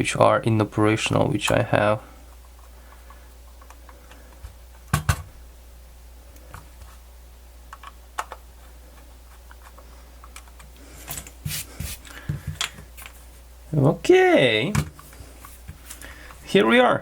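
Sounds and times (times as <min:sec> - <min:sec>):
low steady hum: 0:00.0 - 0:17.0
small parts clicking and tapping: 0:07.7 - 0:10.8.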